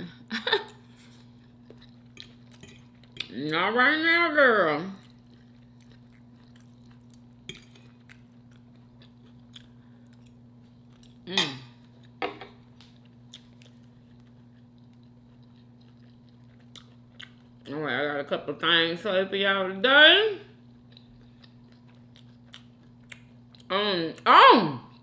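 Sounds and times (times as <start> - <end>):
low steady hum: 0.0 - 25.0
soft chewing: 0.7 - 3.4, 4.9 - 17.8, 20.6 - 23.7.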